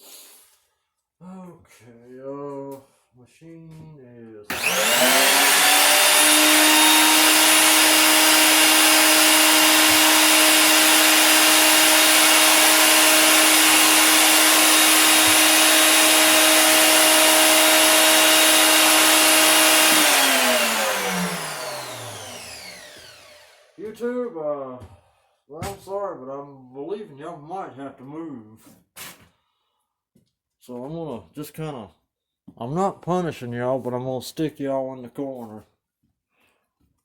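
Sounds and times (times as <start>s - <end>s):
router motor whining: 4.5s - 23.8s.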